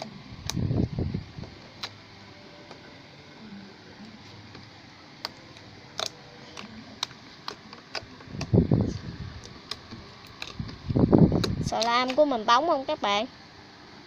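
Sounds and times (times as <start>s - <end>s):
slime squelching: 5.2s - 10.8s.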